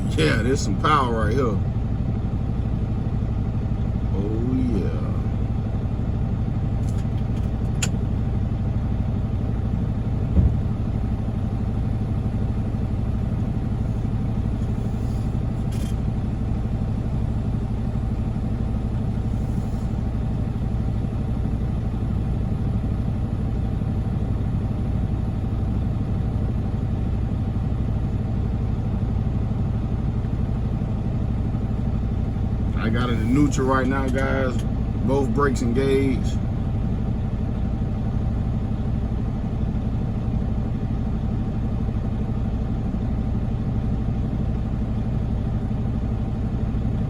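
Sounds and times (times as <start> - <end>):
diesel truck engine running: 0.0 - 47.0
single knock: 10.3 - 10.7.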